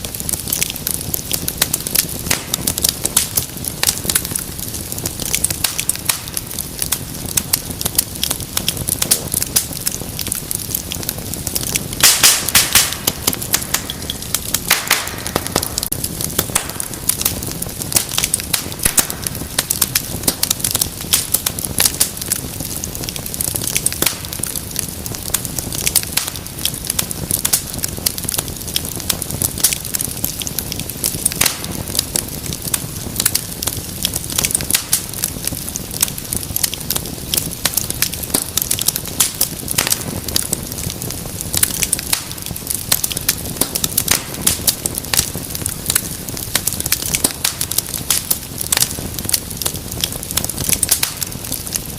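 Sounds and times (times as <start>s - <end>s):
fire popping and snapping: 0.0s - 51.9s
wood fire crackling: 0.0s - 51.9s.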